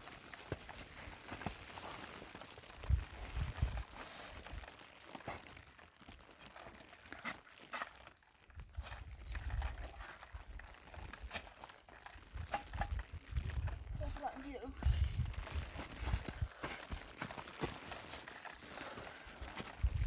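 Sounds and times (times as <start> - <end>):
footsteps crunching through snow: 0.0 - 8.0, 13.4 - 20.0
wind buffeting microphone: 13.0 - 16.5, 19.8 - 20.0.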